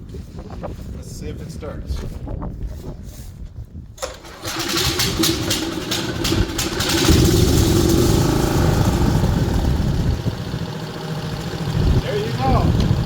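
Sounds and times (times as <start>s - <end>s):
lawnmower engine starting and running: 4.0s - 13.0s.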